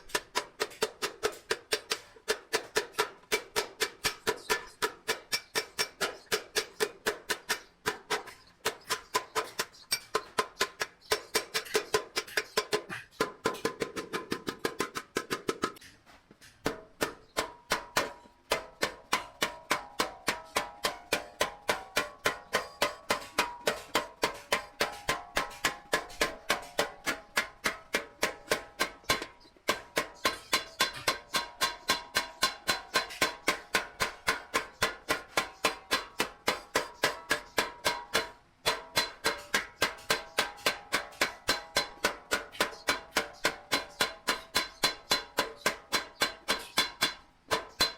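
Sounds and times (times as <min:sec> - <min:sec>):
hammer striking sheet metal: 0:16.6 - 0:47.9.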